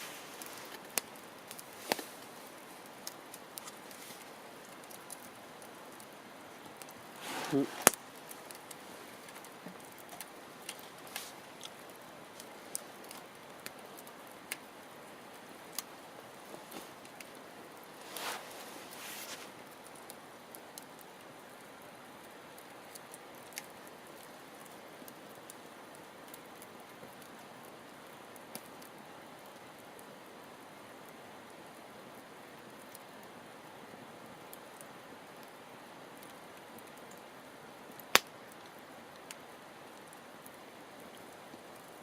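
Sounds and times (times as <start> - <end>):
hissing fire flare-up: 0.0 - 29.8
campfire crackling: 0.0 - 42.0
sharp pops of fire: 0.3 - 2.2, 6.8 - 11.9, 38.0 - 38.4.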